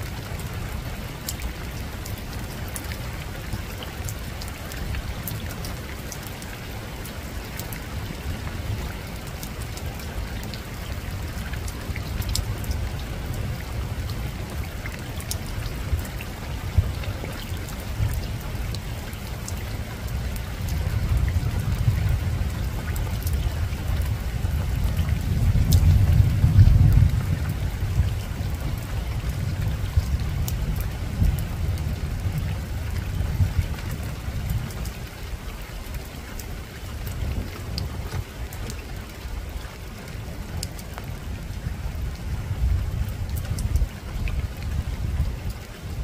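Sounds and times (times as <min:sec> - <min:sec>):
soft rain on a rooftop: 0:00.0 - 0:46.0
distant thunder rumble: 0:20.0 - 0:34.8.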